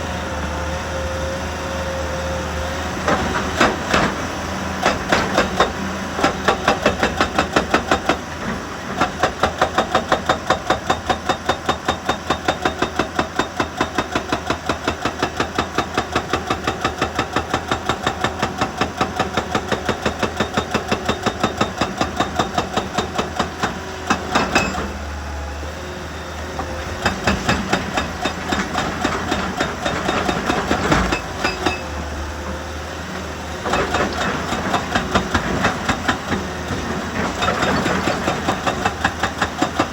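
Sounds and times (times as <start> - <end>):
machinery pounding rock: 26.6 - 31.8, 33.6 - 39.9.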